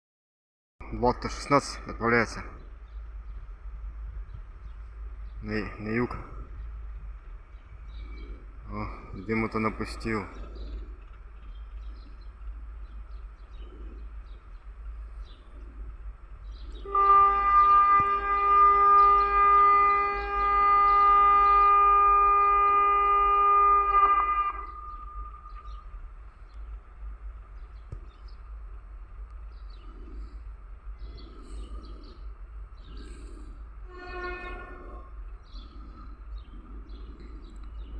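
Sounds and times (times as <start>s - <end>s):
low background rumble: 0.8s - 37.9s
locomotive horn blast: 16.6s - 26.0s, 33.8s - 35.7s.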